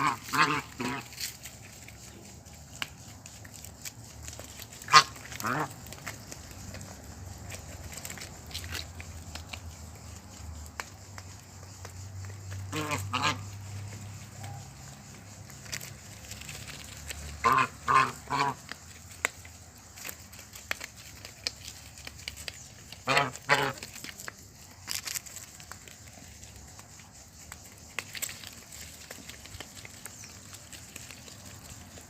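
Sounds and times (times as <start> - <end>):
geese honking: 0.0 - 1.2, 4.7 - 5.8, 12.7 - 13.6, 17.4 - 18.8, 23.0 - 23.9.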